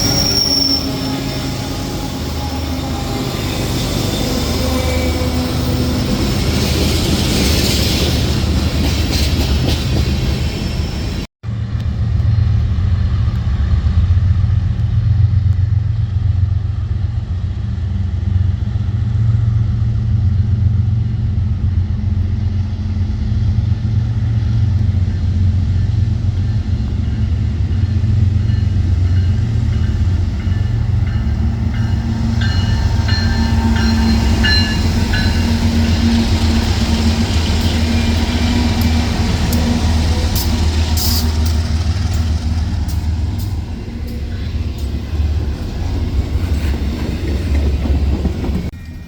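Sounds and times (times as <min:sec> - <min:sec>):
wheel squeals: 0:00.0 - 0:05.8
train rumbling by: 0:00.0 - 0:49.0.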